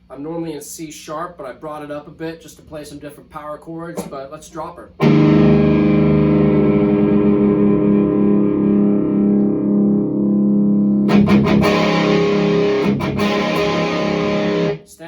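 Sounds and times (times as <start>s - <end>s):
distorted electric guitar chords: 5.0s - 14.9s.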